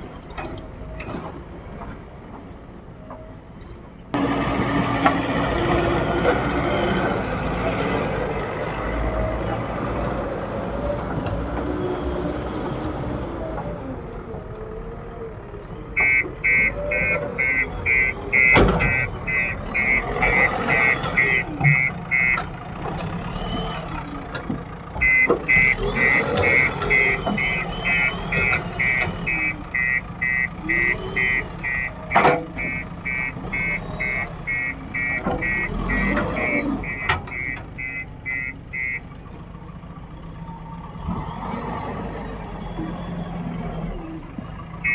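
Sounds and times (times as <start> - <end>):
diesel engine running: 0.0 - 44.9
reversing alarm beeping: 16.0 - 22.5, 25.0 - 39.0.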